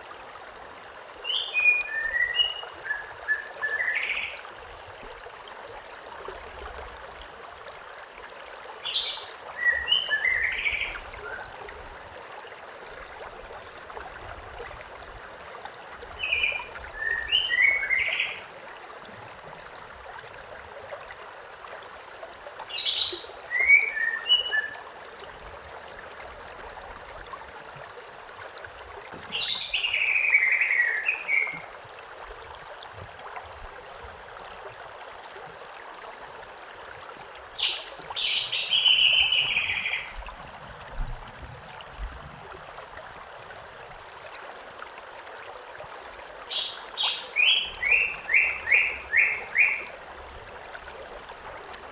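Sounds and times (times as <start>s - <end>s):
stream running: 0.0s - 51.9s
songbird chirping: 22.7s - 24.8s, 29.3s - 31.6s, 37.6s - 40.2s, 46.5s - 49.9s.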